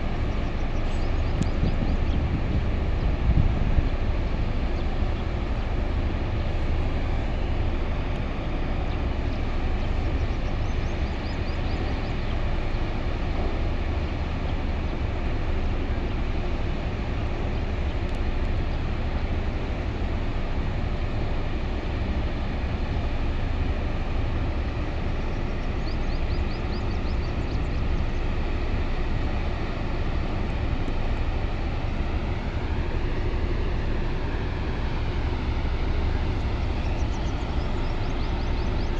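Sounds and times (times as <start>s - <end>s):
drilling rig machinery droning: 0.0s - 38.9s.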